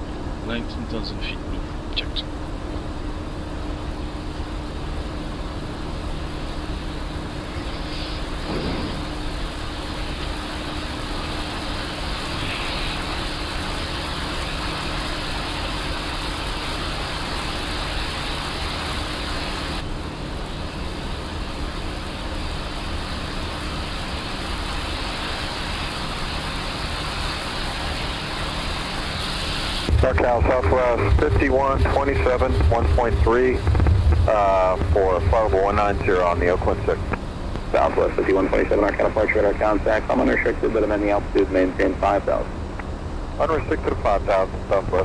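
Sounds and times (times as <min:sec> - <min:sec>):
low steady hum: 0:00.0 - 0:45.0
air rushing past cockpit: 0:29.8 - 0:45.0.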